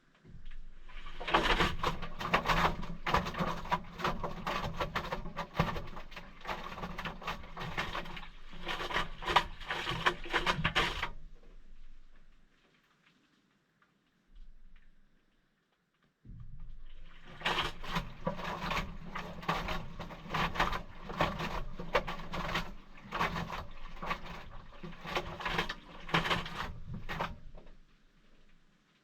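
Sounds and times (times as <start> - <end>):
water and laundry sloshing: 0.2 - 12.6, 16.3 - 28.7
washing machine motor hum: 17.0 - 27.5.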